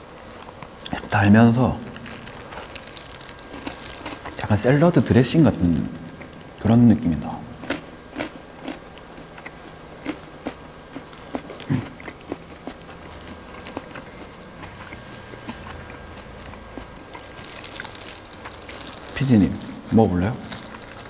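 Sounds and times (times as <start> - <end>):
person chewing fried chicken: 1.8 - 4.4, 7.5 - 21.0.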